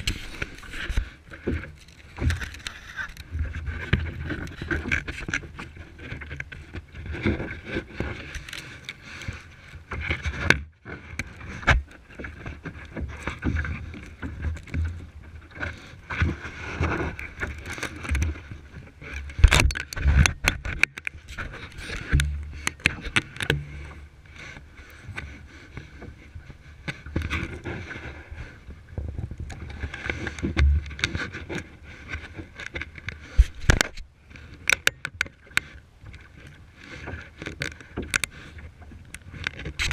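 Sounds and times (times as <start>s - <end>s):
water splashing around kayak: 0.0s - 39.9s
kayak knocks and bumps: 19.0s - 24.0s.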